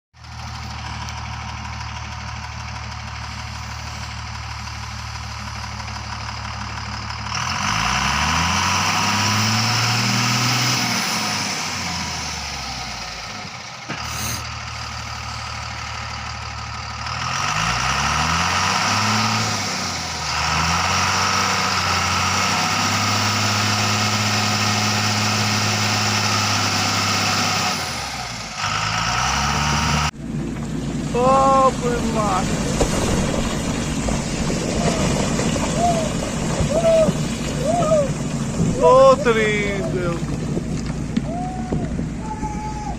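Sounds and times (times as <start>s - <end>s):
truck engine idling and revving: 0.1s - 42.9s.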